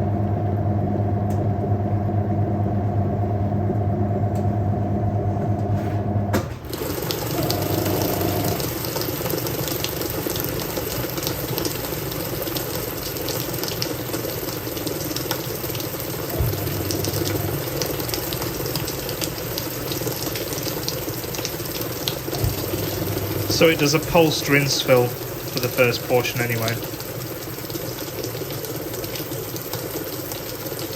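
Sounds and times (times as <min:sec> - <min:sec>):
washing machine motor hum: 0:00.0 - 0:30.9
water pouring into washer tub: 0:06.5 - 0:30.9.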